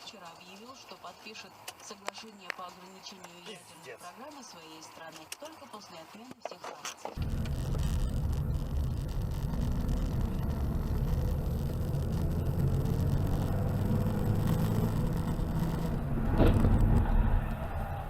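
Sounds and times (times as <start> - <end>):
car engine and road rumble: 7.2 - 18.0.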